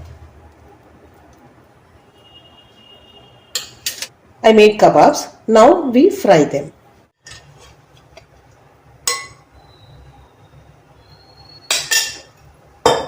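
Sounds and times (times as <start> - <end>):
kitchenware clinking: 3.6 - 4.1, 9.0 - 9.4, 11.7 - 13.0.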